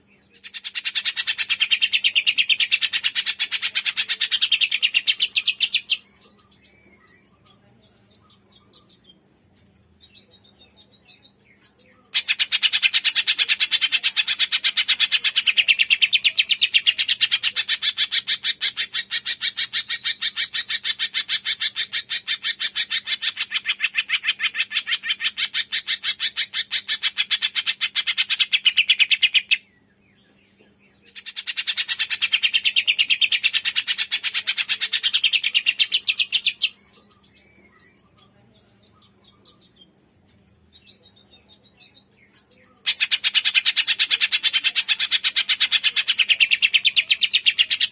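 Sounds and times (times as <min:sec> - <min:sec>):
bird chirping rapidly: 0:31.1 - 0:47.9.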